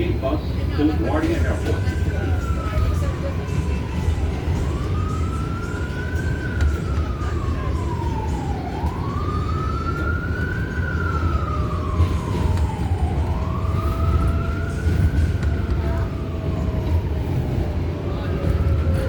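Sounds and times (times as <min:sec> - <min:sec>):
subway train rumble: 0:00.0 - 0:19.0
wailing emergency siren: 0:00.7 - 0:19.0.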